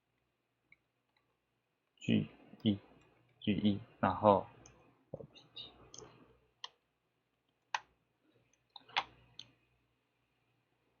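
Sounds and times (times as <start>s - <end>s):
computer mouse and keys clicking: 4.6s - 6.8s, 7.4s - 9.6s.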